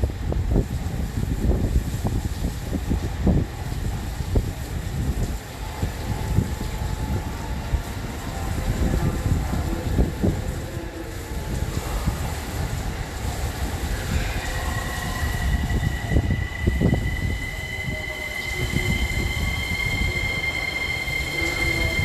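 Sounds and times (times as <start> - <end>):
train cars rumbling: 0.0 - 22.0
high wheel squeal: 14.0 - 22.0.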